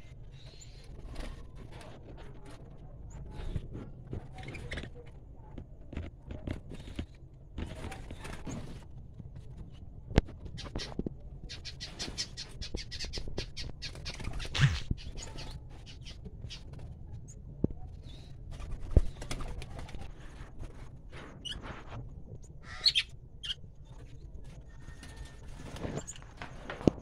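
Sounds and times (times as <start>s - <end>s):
cage birds chirping: 0.1s - 5.0s, 9.4s - 19.8s, 22.4s - 26.7s.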